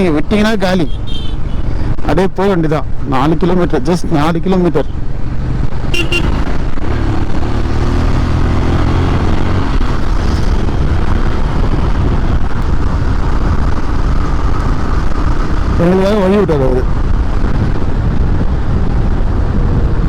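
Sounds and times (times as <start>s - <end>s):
road and wind noise: 0.0s - 20.0s
motorcycle engine running: 5.0s - 16.1s.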